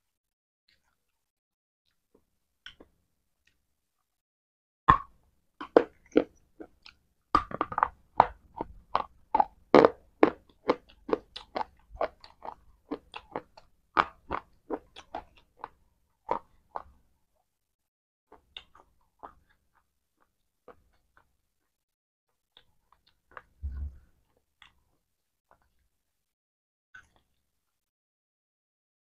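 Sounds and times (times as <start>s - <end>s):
dry crunchy chewing: 5.6s - 17.0s, 18.3s - 21.8s.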